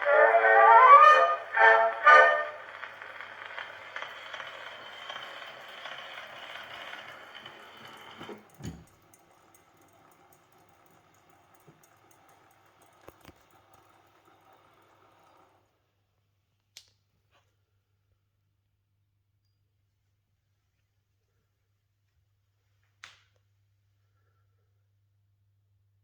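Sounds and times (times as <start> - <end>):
phonograph cylinder surface hiss: 0.0 - 8.6.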